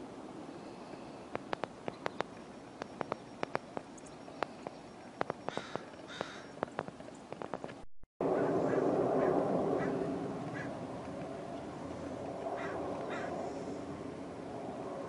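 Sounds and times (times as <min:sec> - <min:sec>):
sharp ticks and clicks: 0:01.3 - 0:07.8
harsh bird calls: 0:03.0 - 0:06.8, 0:12.6 - 0:13.6.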